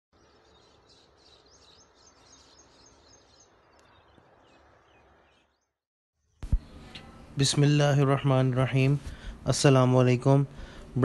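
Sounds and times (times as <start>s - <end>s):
small birds chirping: 0.2s - 7.5s
low steady hum: 6.4s - 11.0s.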